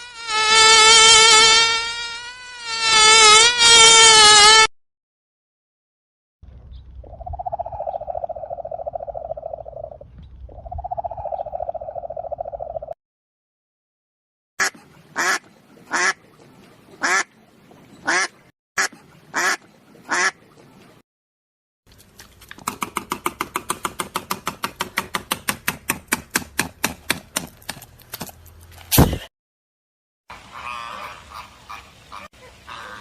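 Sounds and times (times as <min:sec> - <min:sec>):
duck quacking: 0:14.6 - 0:16.2, 0:17.0 - 0:17.3, 0:18.0 - 0:20.4, 0:30.3 - 0:33.0.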